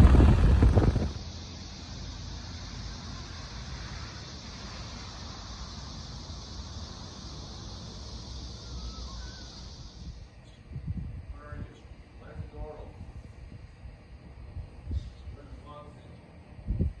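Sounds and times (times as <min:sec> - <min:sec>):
low rumble: 0:00.0 - 0:01.2
rain hissing: 0:00.0 - 0:01.2.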